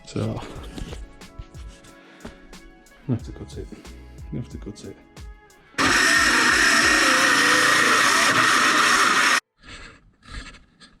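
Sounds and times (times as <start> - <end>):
power saw cutting wood: 5.8 - 9.4.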